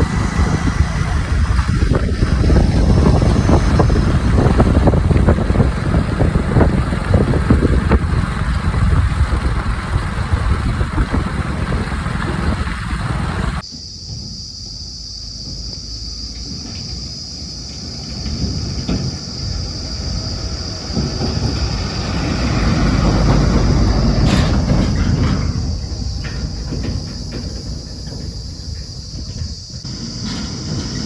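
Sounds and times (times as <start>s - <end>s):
diesel engine under load: 0.0s - 13.6s, 14.8s - 31.0s
metallic knocks and clanks: 23.0s - 31.0s.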